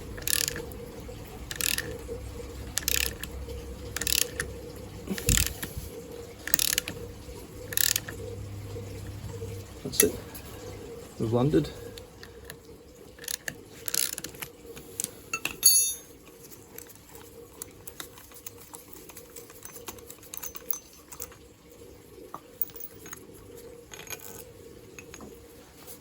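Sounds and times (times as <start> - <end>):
faint steady hum: 0.0 - 26.0
metal hand tools clicking and rattling: 0.1 - 0.8, 1.4 - 2.0, 2.7 - 4.5, 6.4 - 7.0, 7.7 - 8.1, 13.2 - 14.5, 15.3 - 16.1, 17.6 - 21.4
ringing metal clink: 15.3 - 16.2.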